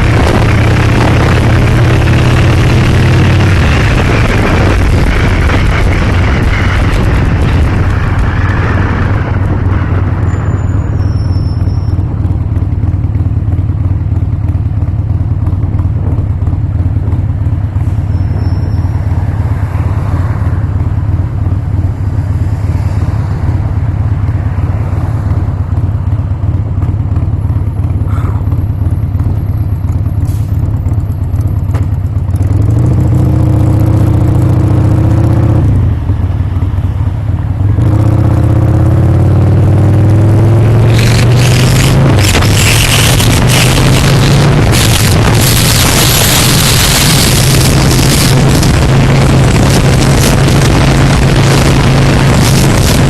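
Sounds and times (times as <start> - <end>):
rushing wind noise: 0.0 - 12.6, 37.4 - 53.0
motorcycle engine running: 0.0 - 53.0.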